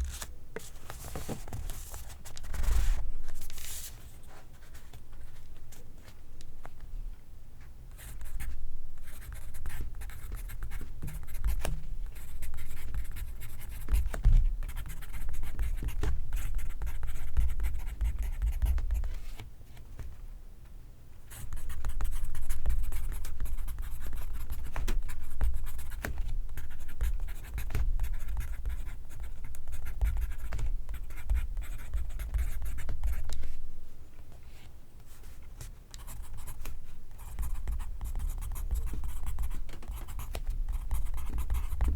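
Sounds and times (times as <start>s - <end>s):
pencil writing on paper: 26.6s - 33.4s, 36.0s - 41.9s.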